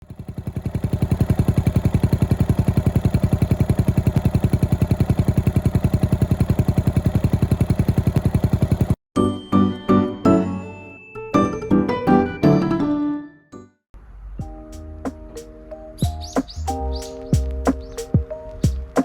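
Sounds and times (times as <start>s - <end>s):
motorcycle engine running at low revs: 0.0s - 9.0s, 16.1s - 19.0s.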